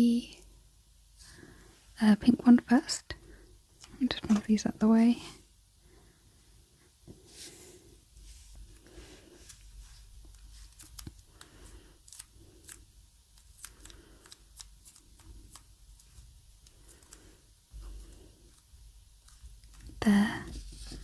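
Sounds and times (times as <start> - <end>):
soft rustles: 7.1 - 12.8, 14.9 - 21.0.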